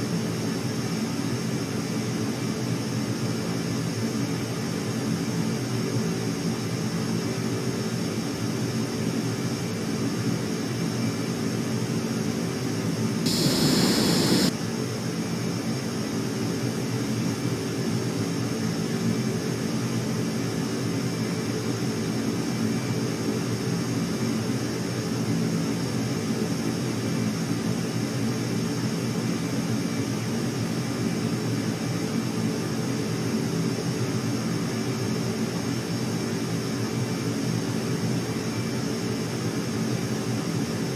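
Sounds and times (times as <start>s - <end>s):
aircraft engines droning: 13.3s - 14.5s
rush of noise: 13.3s - 14.5s.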